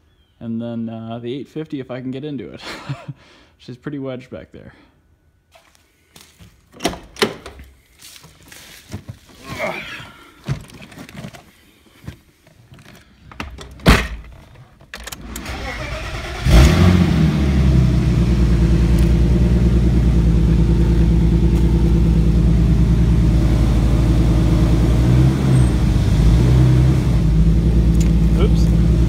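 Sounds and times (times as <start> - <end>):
clicks and thump: 12.0 - 15.2
car engine cranking: 12.7 - 29.0
car engine idling loudly: 16.6 - 29.0.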